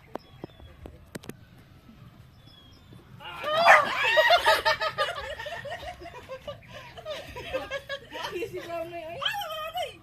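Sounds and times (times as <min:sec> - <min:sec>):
pulsed laughter: 0:03.6 - 0:08.3.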